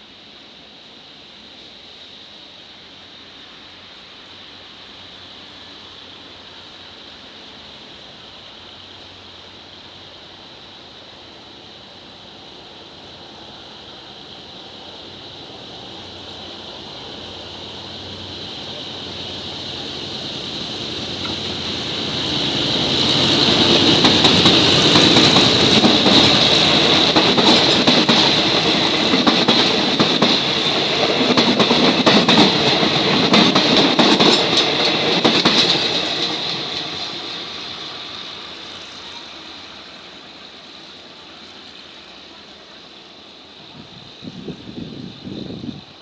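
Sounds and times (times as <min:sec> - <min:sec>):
high-pitched train hiss: 0:00.0 - 0:46.0
train wheels clicking over rail joints: 0:19.1 - 0:39.0.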